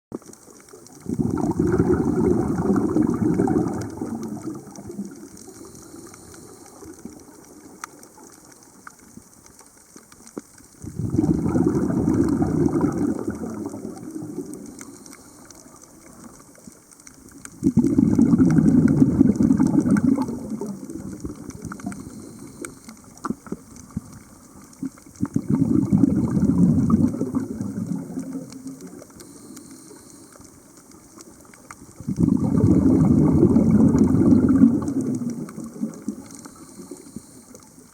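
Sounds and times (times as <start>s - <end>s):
underwater exhaled bubbles gushing: 0.2s - 9.4s, 10.2s - 37.9s
diver inhaling: 21.9s - 23.0s, 36.3s - 37.5s.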